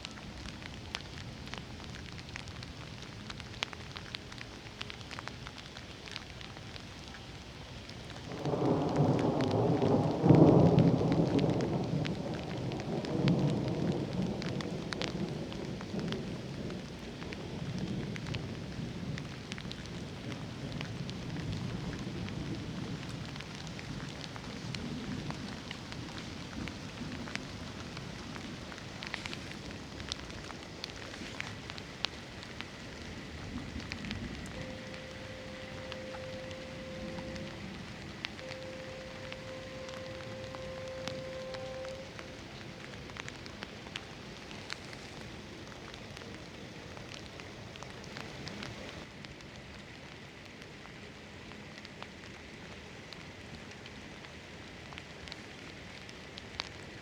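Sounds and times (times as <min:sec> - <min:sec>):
steady rain: 0:00.0 - 0:57.0
thunder rumbling: 0:08.0 - 0:49.1.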